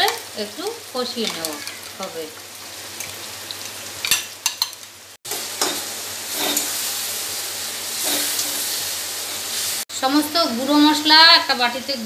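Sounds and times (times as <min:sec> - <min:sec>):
paste sizzling in hot oil: 0:00.1 - 0:09.9
spatula scraping a metal pan: 0:05.6 - 0:06.8, 0:08.0 - 0:08.7.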